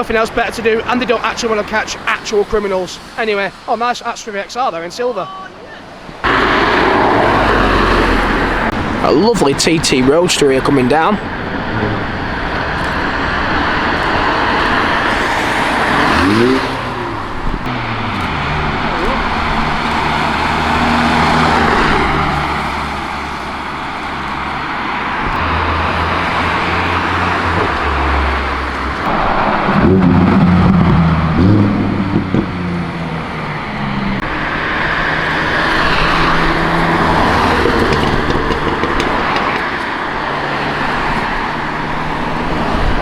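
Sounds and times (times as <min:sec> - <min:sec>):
cars driving past: 0:05.9 - 0:43.0
car accelerating by: 0:06.2 - 0:43.0.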